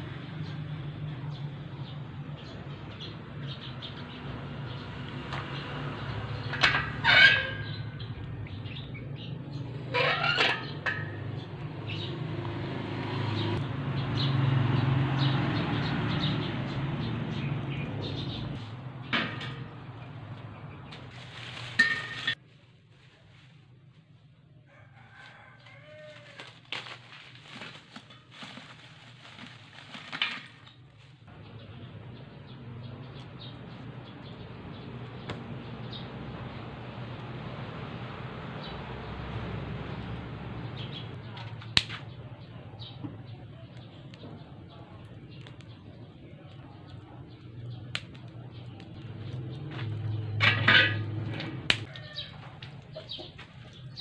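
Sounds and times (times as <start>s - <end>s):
loud bird calls: 2.4s - 12.3s.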